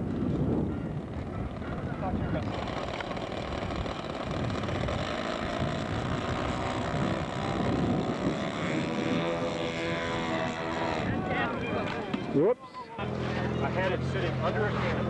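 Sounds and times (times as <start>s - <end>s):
model airplane engine running: 1.0s - 12.3s.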